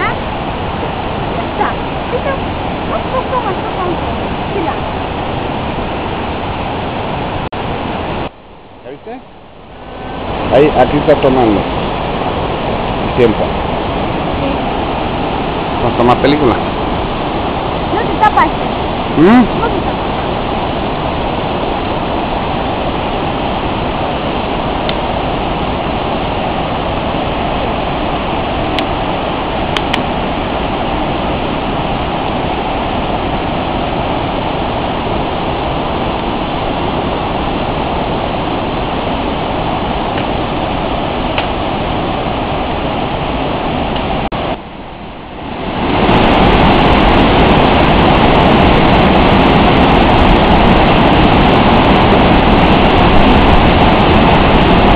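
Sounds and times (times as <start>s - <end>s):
waterfall roaring: 0.0s - 54.9s.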